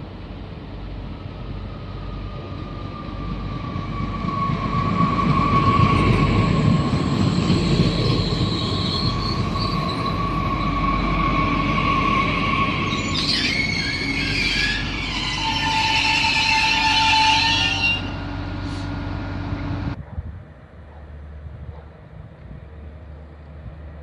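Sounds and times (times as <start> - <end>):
train rumbling on rails: 0.0 - 24.0
train wheels squealing: 1.7 - 19.1.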